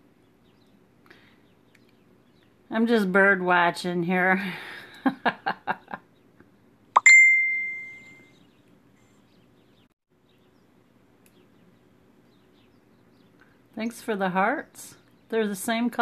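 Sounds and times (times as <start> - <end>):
bright bell-like ding: 7.0 - 8.3.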